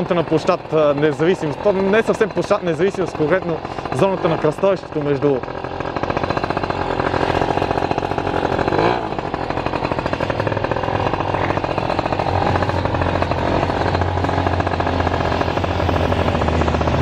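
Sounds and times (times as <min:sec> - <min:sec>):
motor pulsing rapidly: 0:00.0 - 0:17.0.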